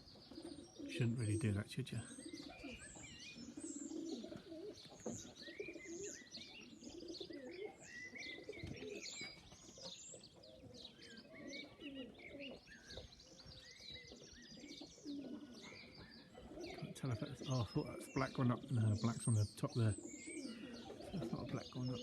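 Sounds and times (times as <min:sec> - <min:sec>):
birds chirping: 0:00.0 - 0:22.0
pigeons cooing: 0:00.0 - 0:22.0.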